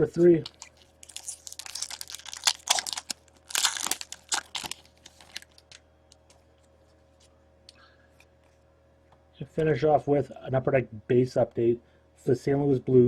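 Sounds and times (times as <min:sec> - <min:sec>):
wrapper tearing and crinkling: 0:00.4 - 0:05.8.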